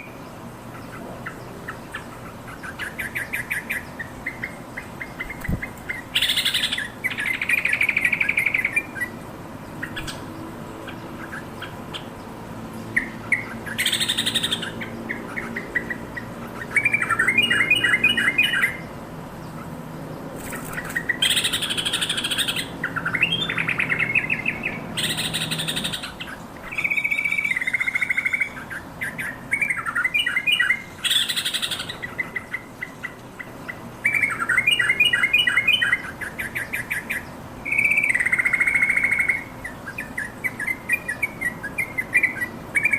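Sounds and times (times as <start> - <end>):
bulbul singing chattering phrases: 0.0 - 19.8, 20.4 - 42.9.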